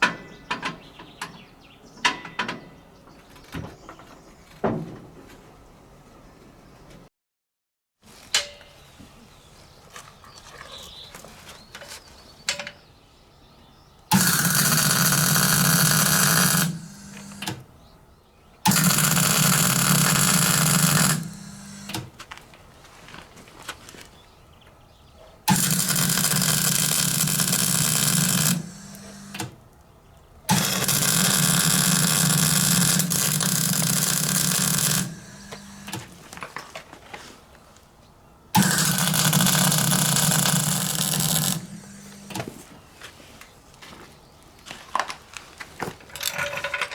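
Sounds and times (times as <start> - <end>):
metalworking tool buzzing and hissing: 14.1 - 17.7, 18.7 - 22.1, 25.5 - 29.6, 30.5 - 36.2, 38.6 - 42.7
small metal clinks: 46.1 - 46.9.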